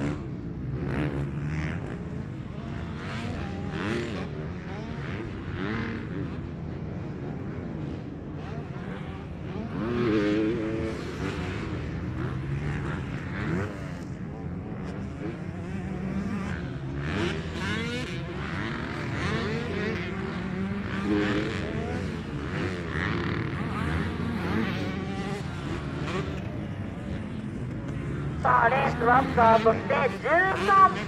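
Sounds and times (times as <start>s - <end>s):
motocross bikes revving: 0.0s - 31.0s.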